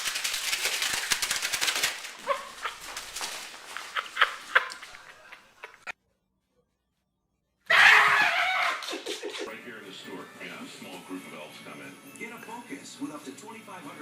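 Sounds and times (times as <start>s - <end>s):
rapid clattering: 0.0s - 5.9s
dog barking: 2.2s - 3.0s.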